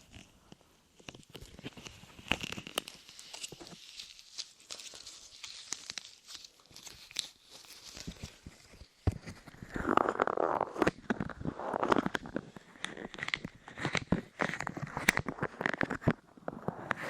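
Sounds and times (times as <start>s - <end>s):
sticky clay crackles on microphone: 0.0s - 17.0s
muffled rubbing on microphone: 9.2s - 12.9s.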